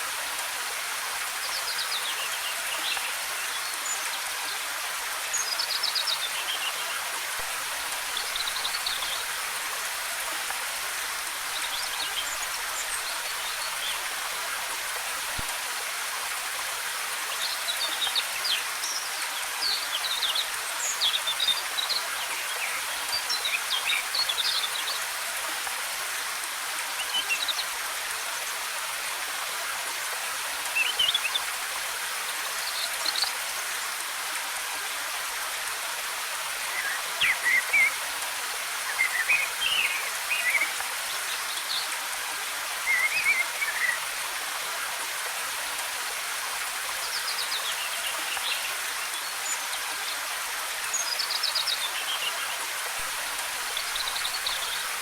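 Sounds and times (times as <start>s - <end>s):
waterfall rushing: 34.4s - 55.0s.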